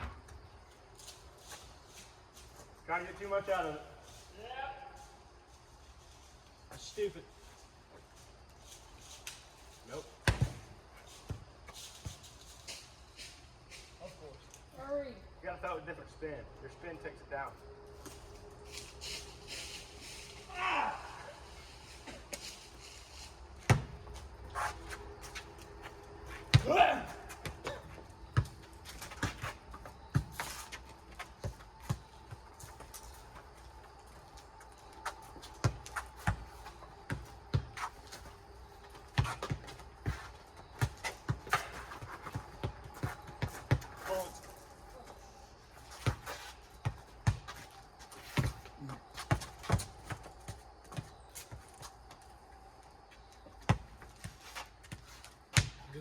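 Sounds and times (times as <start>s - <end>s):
rubber ball bouncing on pavement: 10.2s - 10.7s, 23.6s - 24.2s, 46.0s - 51.9s, 53.6s - 55.8s.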